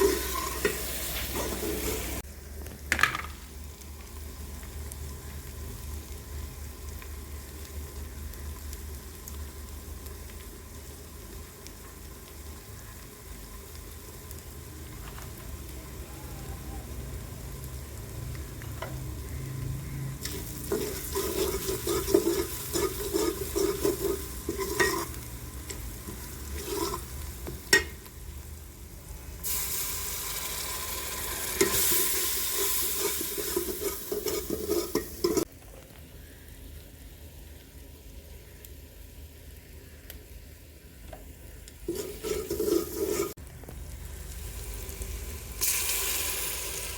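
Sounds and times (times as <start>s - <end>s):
meat sizzling in a pan: 0.0s - 46.9s
spoon scraping metal pan: 20.2s - 27.9s, 32.6s - 35.5s, 41.9s - 43.4s.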